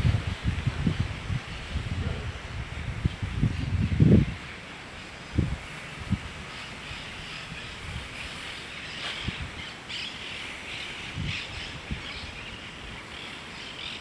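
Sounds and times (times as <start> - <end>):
outdoor background noise: 0.0 - 14.0
birds chirping and calling: 6.4 - 14.0.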